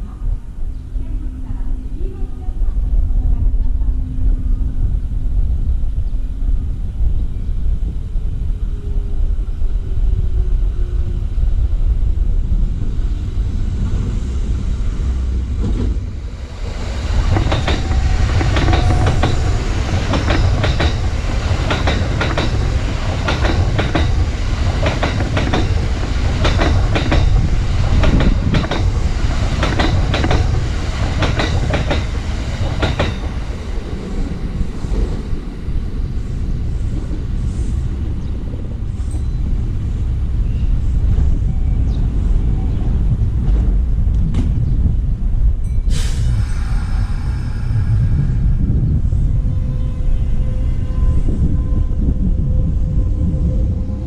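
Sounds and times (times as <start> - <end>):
train low rumble: 0.0 - 54.0
train wheels clacking on rail joints: 17.1 - 33.5.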